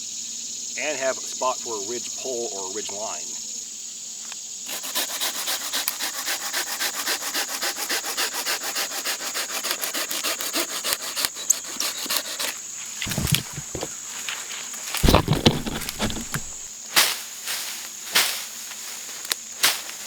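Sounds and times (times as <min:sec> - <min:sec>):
hand saw cutting wood: 0:04.7 - 0:14.0, 0:15.0 - 0:16.7
dull knocks: 0:13.1 - 0:13.9, 0:15.0 - 0:16.7.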